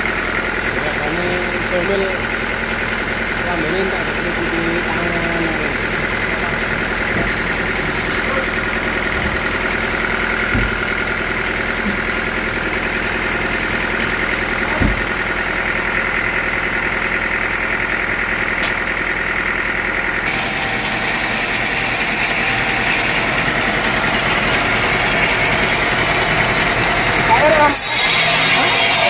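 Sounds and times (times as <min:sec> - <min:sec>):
sawmill machinery humming: 0:00.0 - 0:29.0
light knocks: 0:10.5 - 0:10.9.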